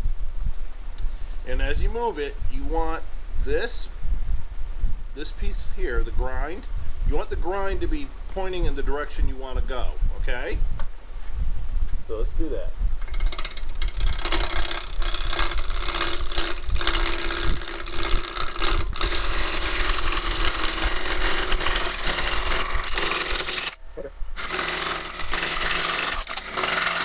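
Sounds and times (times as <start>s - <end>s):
lathe gouge scraping wood: 13.0s - 23.8s, 24.4s - 27.0s.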